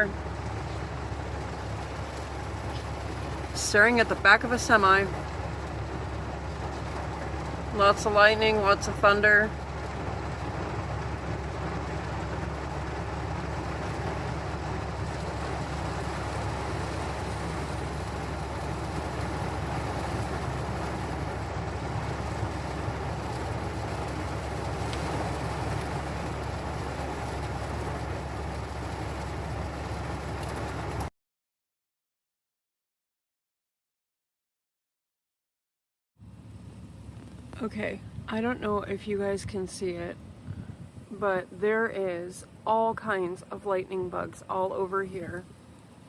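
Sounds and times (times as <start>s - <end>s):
low rumbling thunderstorm: 0.0s - 31.1s, 36.6s - 45.6s.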